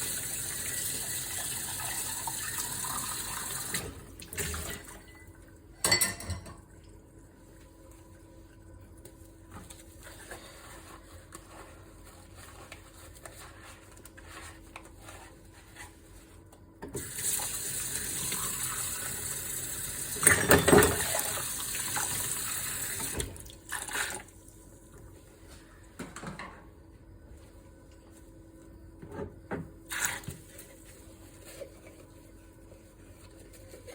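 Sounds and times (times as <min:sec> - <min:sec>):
tap water running and splashing: 0:00.0 - 0:04.9, 0:17.0 - 0:24.3
dishes clinking: 0:05.1 - 0:06.6.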